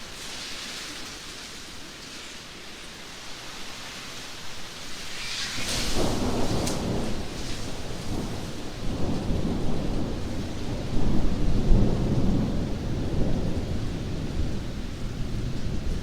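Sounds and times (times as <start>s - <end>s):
heavy rain downpour: 0.0s - 16.0s
thunder rumbling: 5.0s - 16.0s.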